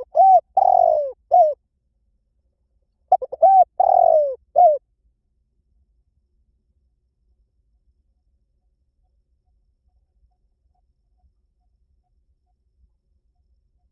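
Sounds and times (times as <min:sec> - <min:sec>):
dove cooing: 0:00.0 - 0:01.6, 0:03.1 - 0:04.8.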